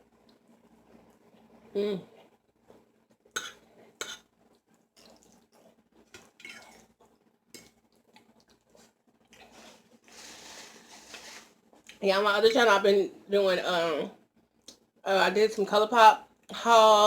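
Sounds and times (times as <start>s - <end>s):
wet mouth eating sounds: 4.0s - 9.6s.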